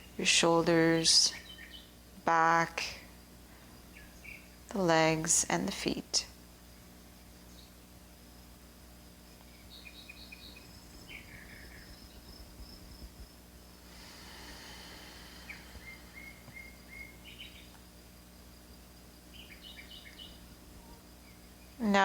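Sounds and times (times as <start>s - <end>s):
birds chirping: 0.0s - 3.0s, 3.6s - 5.2s, 9.4s - 17.9s, 18.8s - 22.0s
soft rush of noise: 10.6s - 19.2s.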